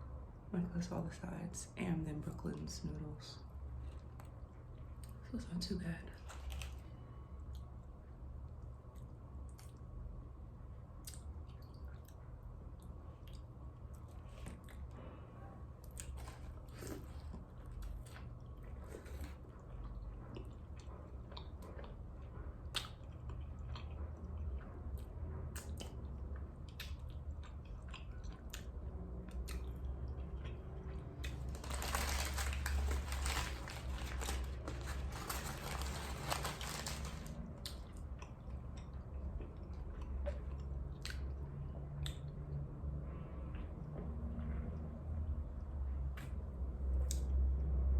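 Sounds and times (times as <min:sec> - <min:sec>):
chewing and biting: 0:08.8 - 0:09.9, 0:15.8 - 0:41.4
loud crunching: 0:31.3 - 0:37.4.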